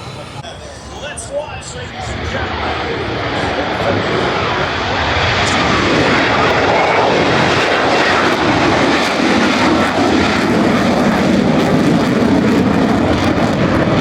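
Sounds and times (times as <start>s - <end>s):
airplane engine in flight: 0.0s - 14.0s.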